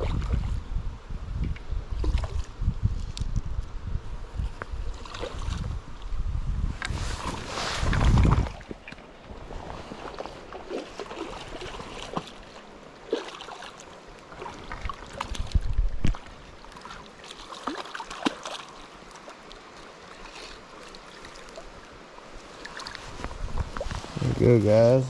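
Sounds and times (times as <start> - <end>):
river water running: 4.1 - 25.0
small splashes: 10.0 - 24.2.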